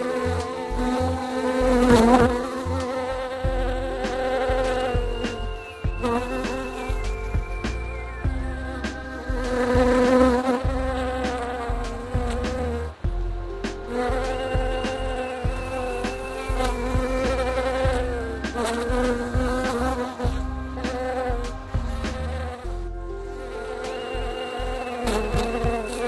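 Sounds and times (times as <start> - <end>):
low stepped notes: 0.0 - 26.0.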